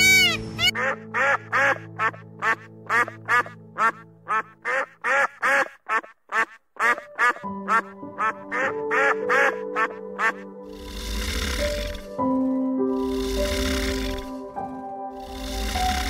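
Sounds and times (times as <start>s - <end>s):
background music with held notes: 0.0s - 5.7s, 6.3s - 16.0s
duck calling: 0.0s - 10.5s.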